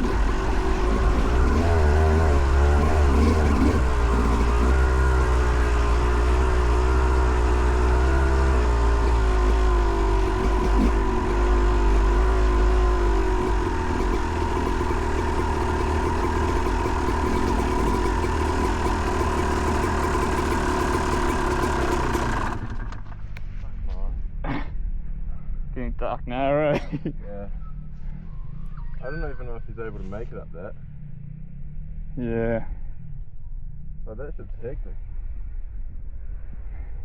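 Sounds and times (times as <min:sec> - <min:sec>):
dirt bike two-stroke engine running: 0:00.0 - 0:23.6.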